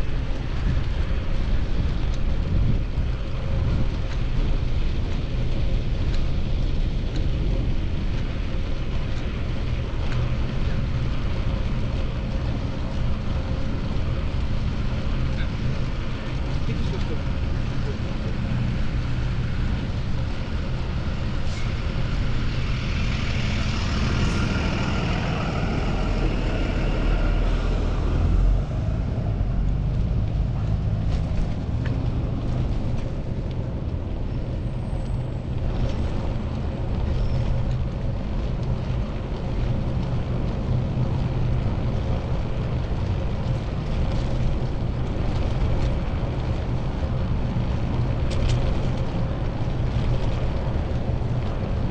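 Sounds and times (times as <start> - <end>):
city traffic: 0.0 - 51.9
wind buffeting microphone: 0.0 - 51.9
loud vehicle passing: 21.2 - 32.9.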